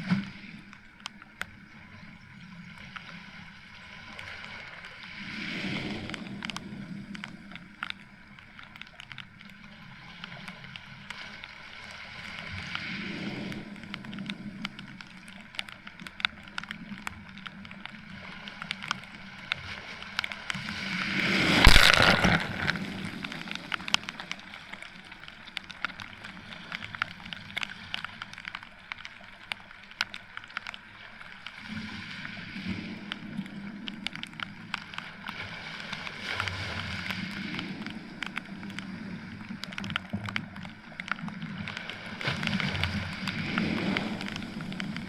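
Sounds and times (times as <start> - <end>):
rain hiss: 0.0 - 45.0
raindrops hitting: 5.5 - 45.0
waves surging: 17.0 - 28.5, 40.6 - 45.0.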